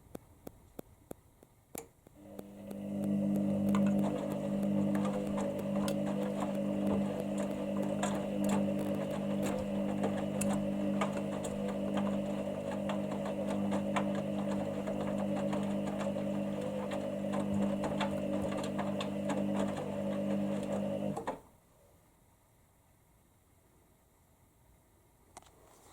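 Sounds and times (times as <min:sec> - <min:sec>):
washing machine motor hum: 0:02.2 - 0:21.4.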